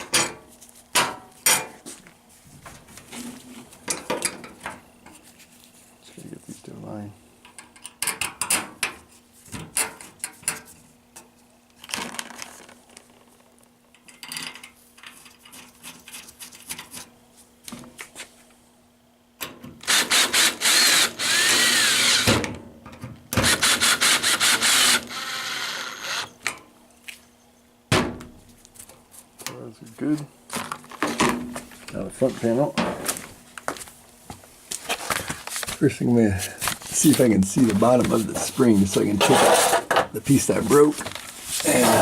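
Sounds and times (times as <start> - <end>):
cordless drill driving screws: 19.8 - 22.3, 23.4 - 26.3.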